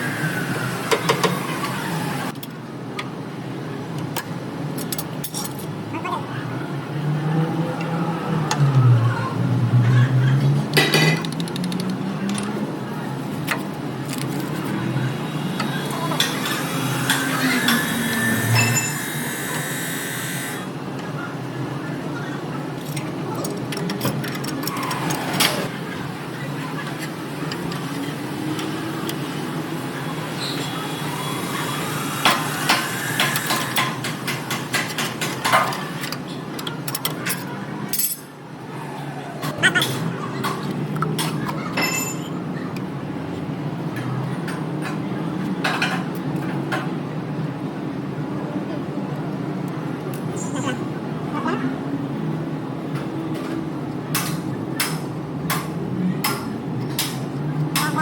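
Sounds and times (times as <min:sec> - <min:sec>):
low voices talking: 0:05.8 - 0:58.0
hand tools clinking on metal: 0:41.7 - 0:42.4.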